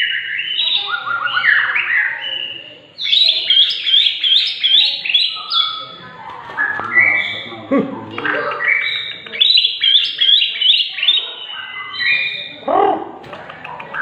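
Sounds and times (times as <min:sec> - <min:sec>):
bird singing whistled phrases: 0:00.0 - 0:05.8, 0:08.3 - 0:12.6.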